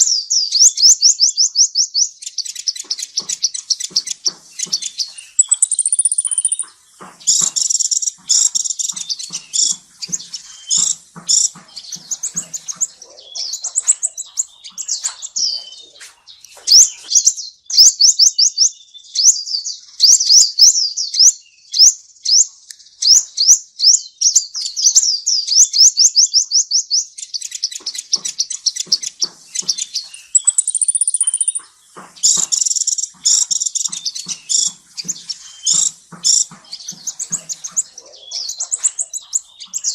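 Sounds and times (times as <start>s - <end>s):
small birds chirping: 0.0s - 39.9s
fast sweeping bird notes: 4.0s - 16.0s.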